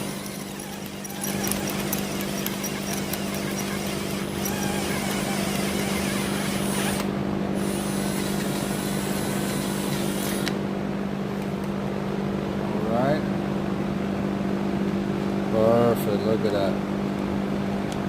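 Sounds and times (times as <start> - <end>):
cordless drill boring through steel: 0.0 - 10.6.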